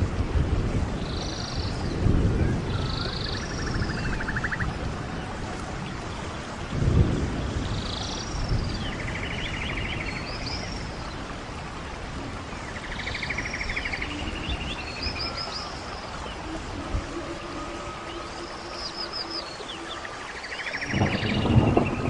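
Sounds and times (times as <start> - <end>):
steady hiss: 0.0 - 22.0
bird singing whistles and trill: 12.9 - 22.0.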